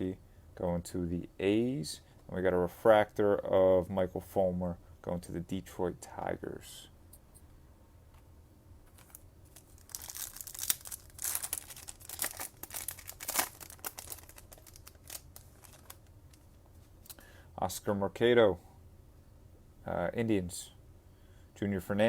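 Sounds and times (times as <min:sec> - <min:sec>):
plastic wrapper tearing and crinkling: 0:08.9 - 0:16.4.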